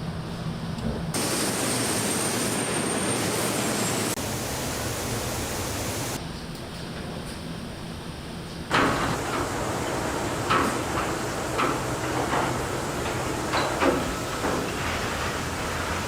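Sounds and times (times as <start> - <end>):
loud rushing air hiss: 1.2 - 6.2, 8.7 - 16.0.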